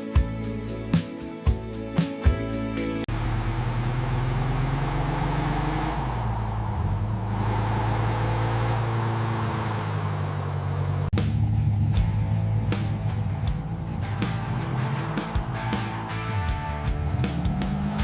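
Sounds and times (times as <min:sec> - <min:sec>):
music: 0:00.0 - 0:03.1, 0:11.2 - 0:18.0
car engine running: 0:03.1 - 0:18.0.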